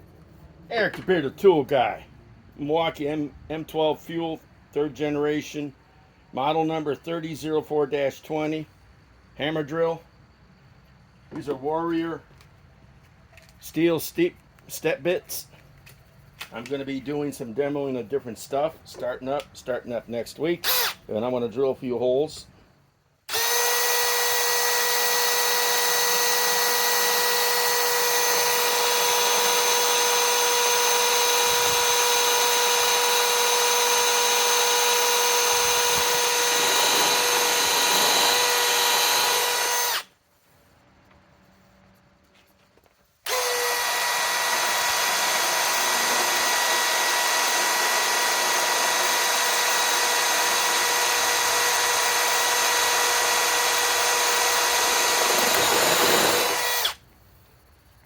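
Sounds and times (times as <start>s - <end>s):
hammer drill whining: 20.6s - 21.0s, 23.3s - 40.1s, 43.2s - 57.0s.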